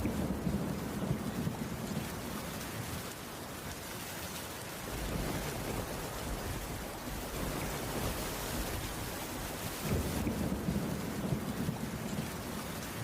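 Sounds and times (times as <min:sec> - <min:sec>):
heavy rain hissing: 0:04.6 - 0:12.8.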